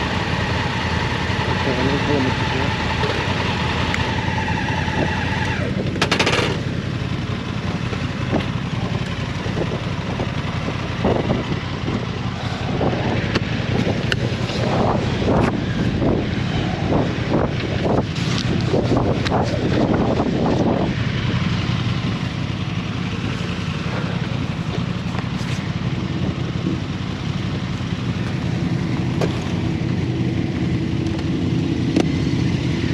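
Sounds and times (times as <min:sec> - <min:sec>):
motorcycle engine rumbling: 0:00.0 - 0:32.9
wind hitting microphone: 0:09.4 - 0:21.4.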